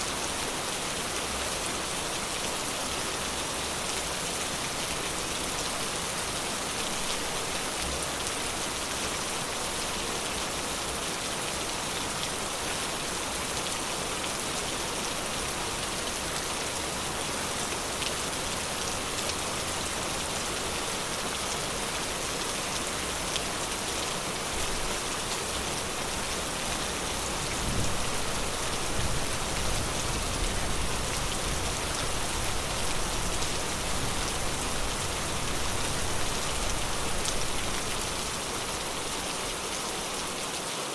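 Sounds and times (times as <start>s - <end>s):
rain in forest: 0.0s - 40.9s.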